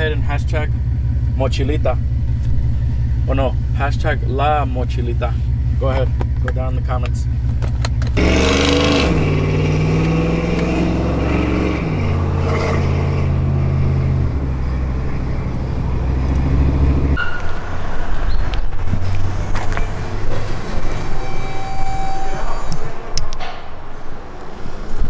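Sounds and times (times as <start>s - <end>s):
loud truck exhaust drone: 0.0s - 6.5s, 7.2s - 23.4s.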